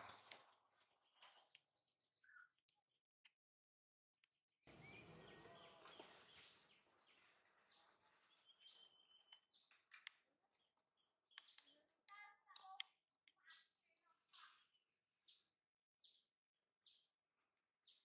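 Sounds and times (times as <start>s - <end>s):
birds chirping and calling: 4.7s - 16.2s.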